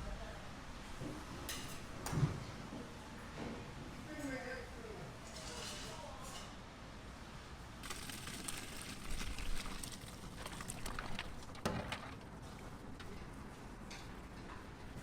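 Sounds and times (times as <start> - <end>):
steady low background noise: 0.0 - 5.3.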